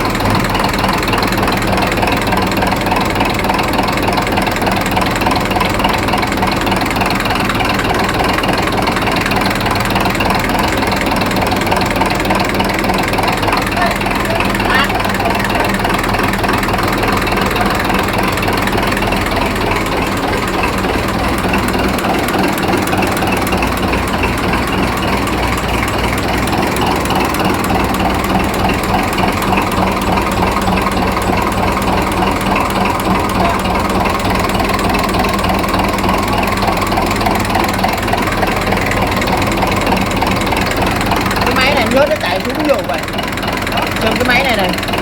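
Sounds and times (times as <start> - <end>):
machine motor hum with rattle: 0.0 - 45.0.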